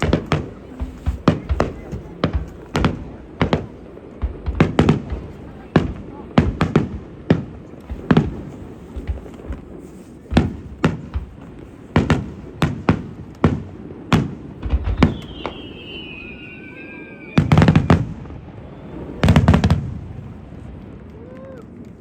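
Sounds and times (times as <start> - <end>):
fireworks bursting with echoing bangs: 0.0 - 22.0
falling firework whistle: 14.6 - 19.9.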